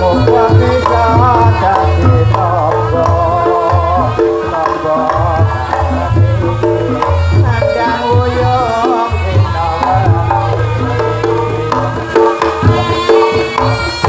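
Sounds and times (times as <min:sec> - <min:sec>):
hand drum strokes: 0:00.0 - 0:14.0
wavering reed melody: 0:00.0 - 0:14.0.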